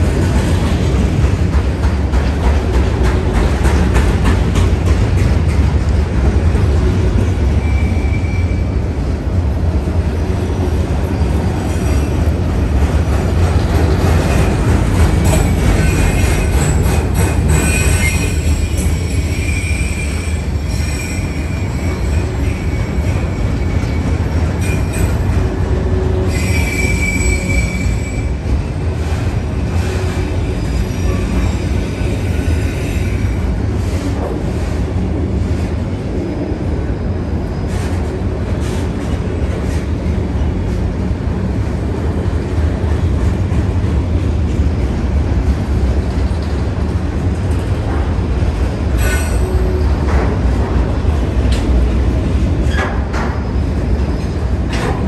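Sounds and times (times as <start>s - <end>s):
freight train rumbling past: 0.0s - 55.0s
high-pitched wheel squeal: 17.5s - 24.0s, 26.3s - 28.3s.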